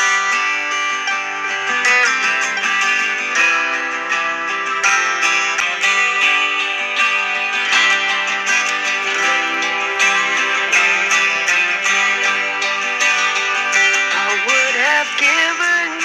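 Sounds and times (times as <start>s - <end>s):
guitar strumming: 0.0s - 16.0s
person singing: 9.1s - 16.0s.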